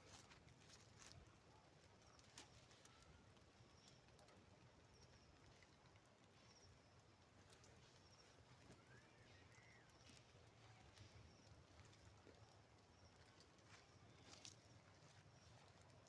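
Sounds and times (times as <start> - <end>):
faint high chirps: 2.0 - 15.9.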